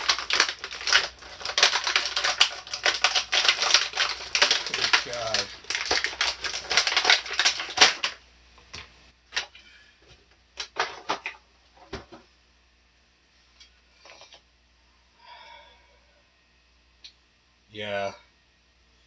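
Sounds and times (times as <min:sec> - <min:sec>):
plastic packaging clicks and crinkles: 0:00.0 - 0:09.6, 0:10.6 - 0:12.2.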